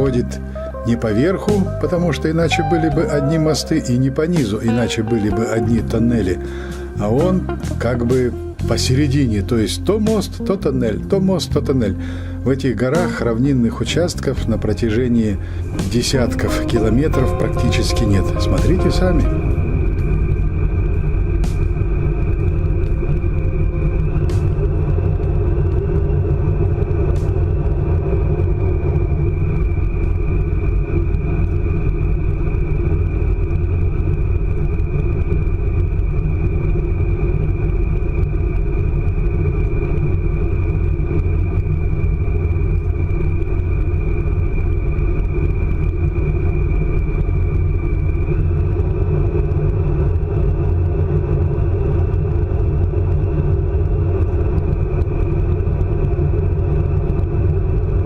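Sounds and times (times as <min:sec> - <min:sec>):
high-pitched train whine: 0:00.0 - 0:09.8, 0:11.8 - 0:58.0
high-speed train rumble: 0:00.0 - 0:58.0.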